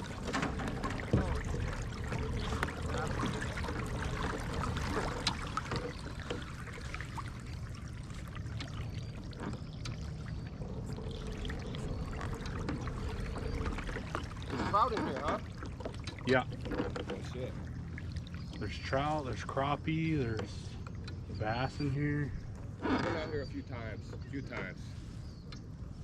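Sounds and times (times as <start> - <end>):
low rumble: 0.0 - 16.6
small splashes and ticks: 0.0 - 24.7
water trickling and dripping: 0.0 - 24.7.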